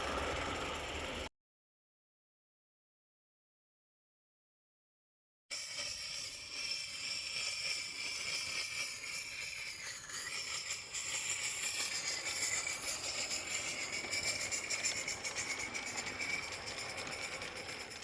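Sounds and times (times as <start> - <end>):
model locomotive hiss: 0.0 - 1.3, 5.5 - 18.0.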